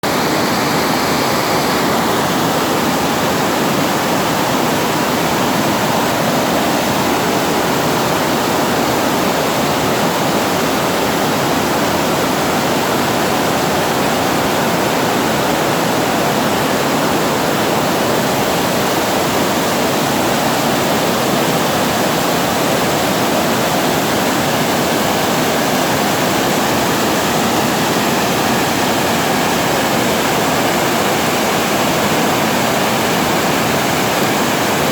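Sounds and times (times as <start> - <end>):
water rushing over a weir: 0.0 - 34.9.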